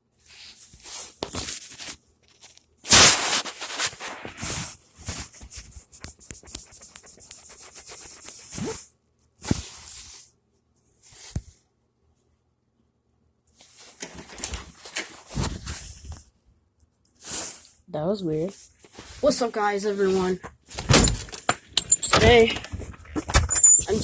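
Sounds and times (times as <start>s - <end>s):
rustling and crackling: 0.3s - 8.8s, 13.6s - 16.3s, 18.5s - 24.0s.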